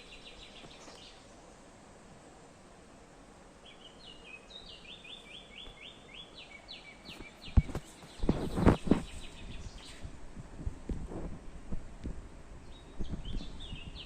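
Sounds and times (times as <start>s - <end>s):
songbird singing short notes: 3.6s - 10.1s, 12.6s - 14.0s.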